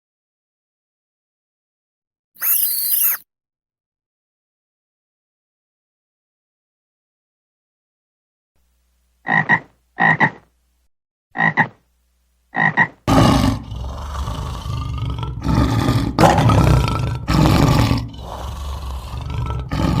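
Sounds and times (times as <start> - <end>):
animal croaks: 9.2 - 10.4, 11.4 - 11.8, 12.5 - 20.0
rough roaring animal call: 13.1 - 20.0.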